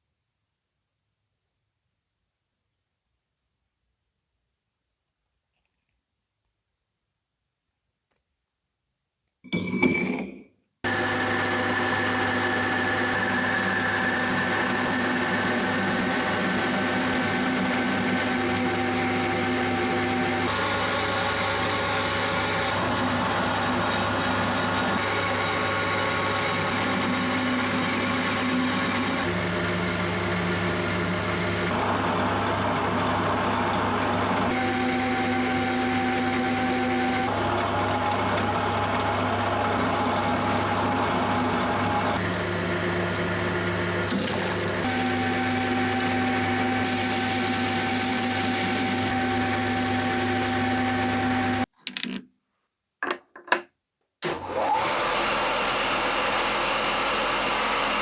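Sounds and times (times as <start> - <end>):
machine tool motor humming: 33.3 - 37.3, 42.2 - 51.6.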